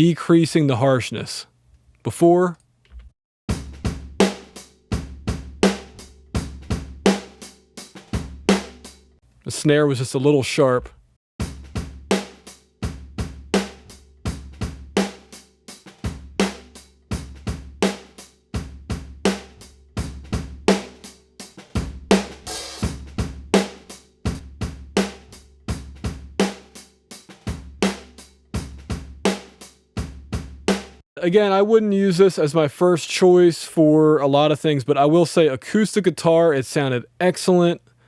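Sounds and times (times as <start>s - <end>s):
drum kit groove: 3.5s - 9.8s, 10.5s - 31.0s.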